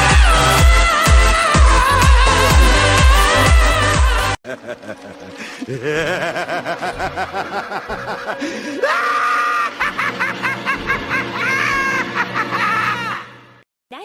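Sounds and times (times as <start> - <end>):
music: 0.0 - 13.6
rapid giggling: 4.5 - 8.8.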